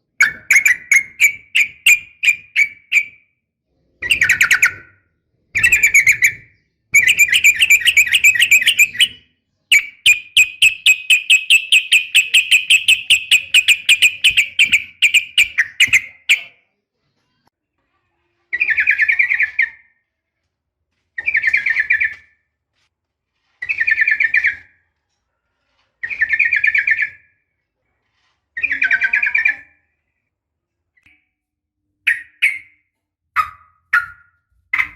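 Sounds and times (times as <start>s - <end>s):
bird chattering trill: 7.0s - 16.5s.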